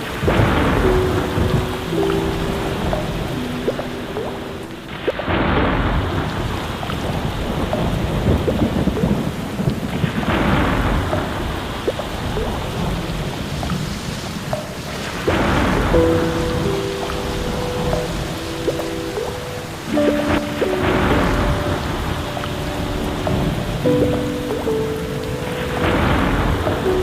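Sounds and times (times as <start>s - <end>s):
rolling thunder: 0.0s - 4.2s, 4.8s - 18.8s, 20.0s - 27.0s
sustained music notes: 0.0s - 5.2s, 15.3s - 27.0s
steady rain: 0.0s - 27.0s.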